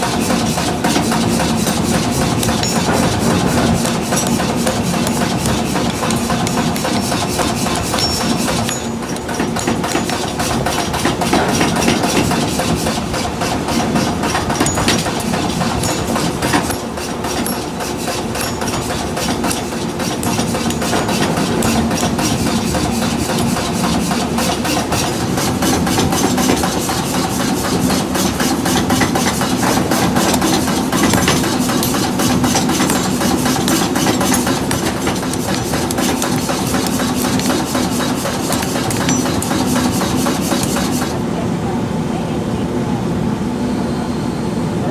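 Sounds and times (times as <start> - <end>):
metalworking machinery humming: 0.0 - 41.5
fast metallic rattle: 28.6 - 41.1.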